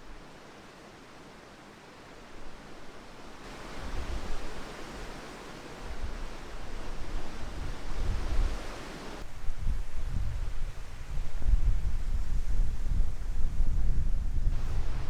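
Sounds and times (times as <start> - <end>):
strong gusting wind on microphone: 3.5 - 5.2, 5.8 - 15.0.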